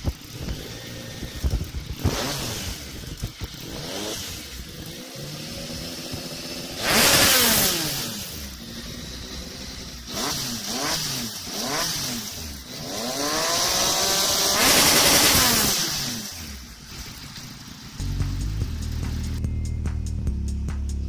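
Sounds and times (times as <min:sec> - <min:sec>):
motorcycle engine revving: 0:00.0 - 0:21.0
music: 0:18.0 - 0:21.0.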